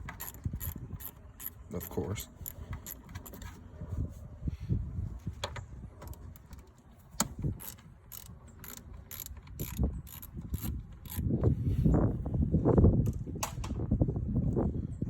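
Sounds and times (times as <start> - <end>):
ratchet wrench clicking: 0.0 - 3.1, 7.6 - 11.3.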